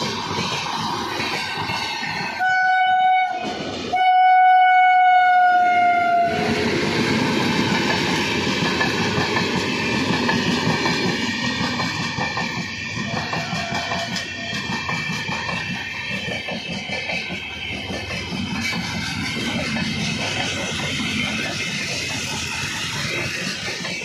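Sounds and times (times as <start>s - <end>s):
train wheels rumbling and clattering: 0.0s - 24.0s
locomotive horn: 2.4s - 6.5s.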